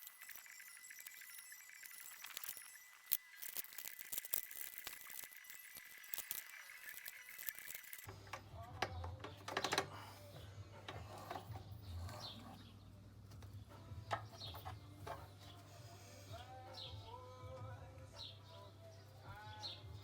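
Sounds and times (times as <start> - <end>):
metallic clicks and clinks: 0.0 - 10.1.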